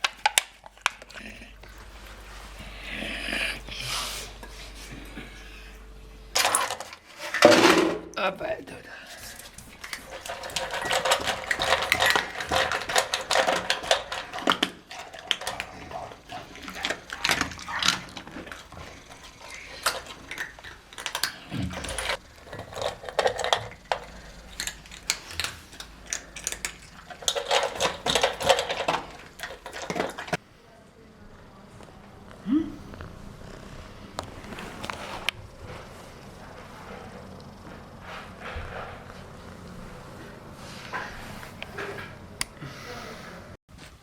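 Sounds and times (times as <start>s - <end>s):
small hard objects clattering: 9.3s - 30.4s.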